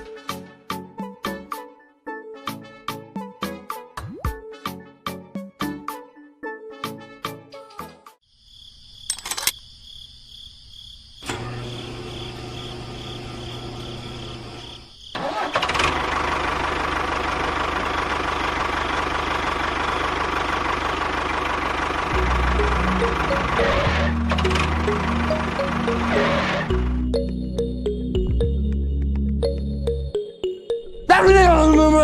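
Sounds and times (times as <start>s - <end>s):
motor starting and humming: 11.2s - 27.1s.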